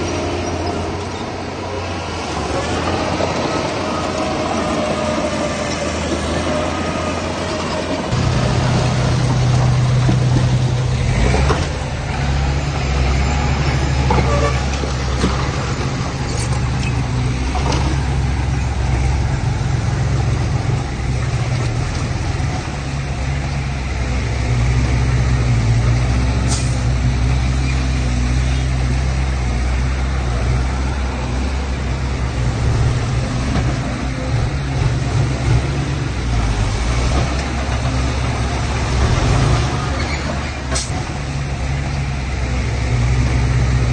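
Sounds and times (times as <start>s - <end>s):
heavy machinery diesel engines: 0.0s - 43.9s.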